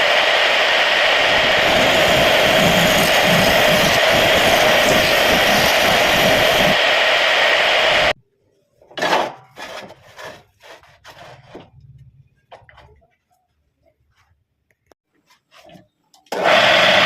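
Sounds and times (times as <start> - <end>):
wood lathe running: 0.0 - 8.2
rubbing and scraping on wood: 9.6 - 11.8.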